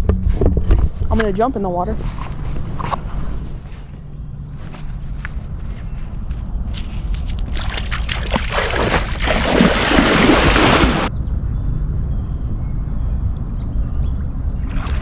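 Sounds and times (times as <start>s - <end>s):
body splashing into water: 7.1s - 11.1s.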